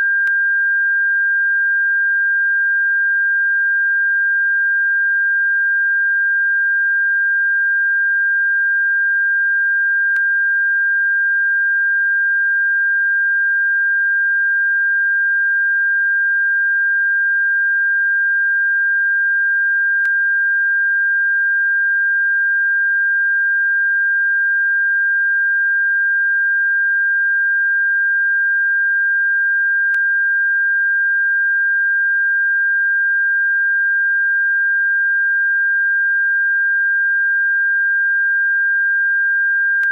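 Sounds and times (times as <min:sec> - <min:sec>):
faint click: 0:20.0 - 0:20.2.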